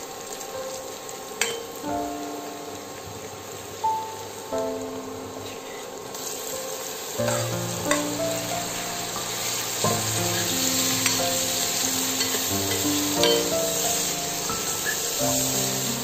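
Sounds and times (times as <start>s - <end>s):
food sizzling in a pan: 0.0s - 16.0s
soft background music: 0.0s - 16.0s
spoon clinking on pan: 1.4s - 1.7s
spoon stirring and scraping pan: 9.2s - 13.5s.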